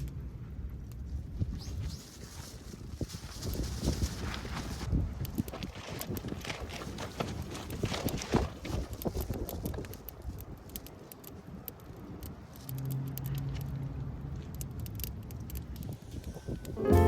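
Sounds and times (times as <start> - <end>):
light clicks and rattles: 5.2 - 16.4.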